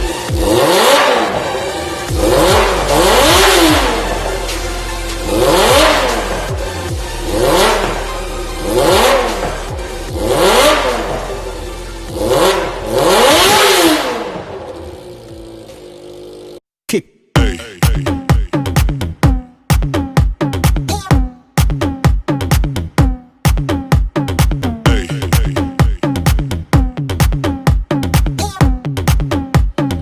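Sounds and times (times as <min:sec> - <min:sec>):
motorcycle engine revving: 0:00.0 - 0:16.6.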